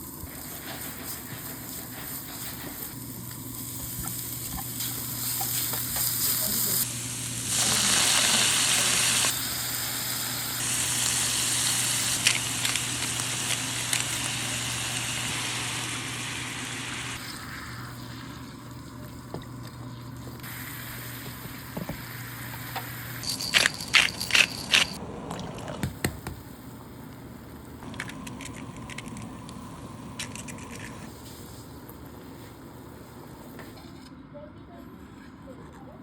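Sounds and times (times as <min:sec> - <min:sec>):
steak sizzling in a pan: 0:03.5 - 0:17.8.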